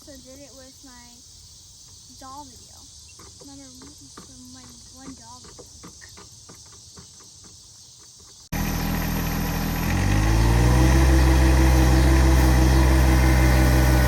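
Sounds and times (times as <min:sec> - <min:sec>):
faint insect chirping: 0:00.0 - 0:08.5
loud engine: 0:08.5 - 0:14.0.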